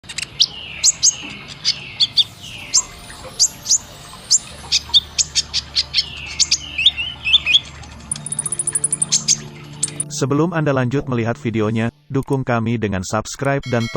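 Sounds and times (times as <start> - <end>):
bird chirping: 0.0 - 10.1
high bird trill: 0.2 - 10.1.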